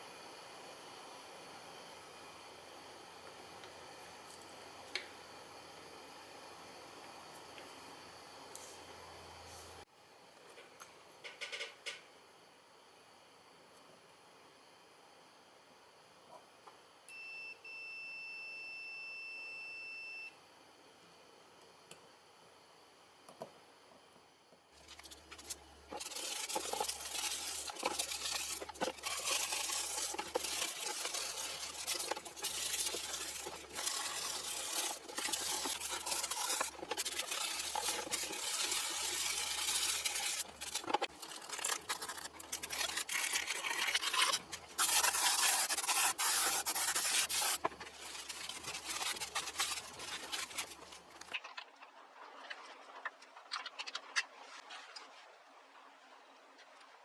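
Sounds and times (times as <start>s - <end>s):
rough scraping and rubbing: 24.8s - 51.6s.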